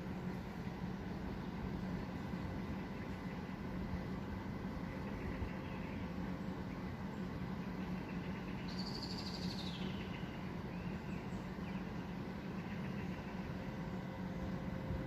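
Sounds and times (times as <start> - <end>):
faint bird chirps: 4.9 - 14.1.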